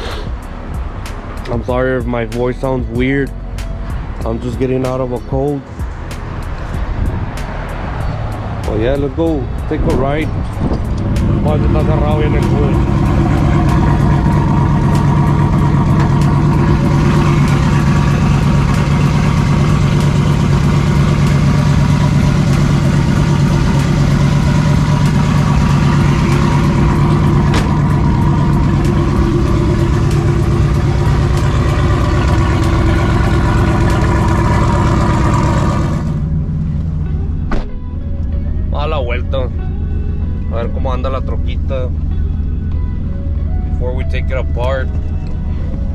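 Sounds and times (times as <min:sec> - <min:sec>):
truck engine drone: 0:00.0 - 0:45.9.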